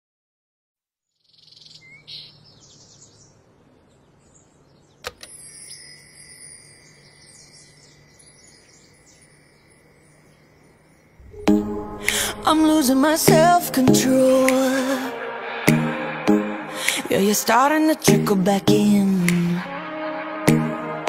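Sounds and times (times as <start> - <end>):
faint birdsong chirps and whistles: 1.1 - 11.6.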